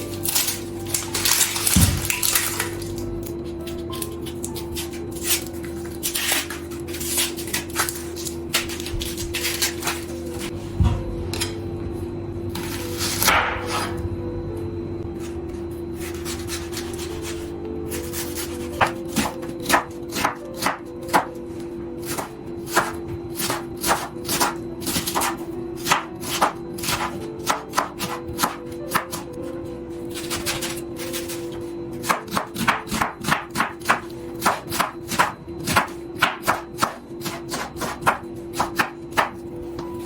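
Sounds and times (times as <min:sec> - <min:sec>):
knife chopping on cutting board: 0:18.1 - 0:21.3, 0:22.0 - 0:29.2, 0:30.2 - 0:39.9.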